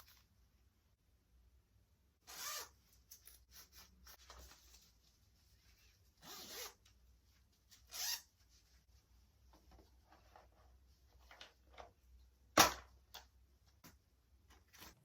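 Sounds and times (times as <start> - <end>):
zipper being pulled: 2.3 - 2.8, 6.2 - 6.8
handling rustles: 2.9 - 6.2.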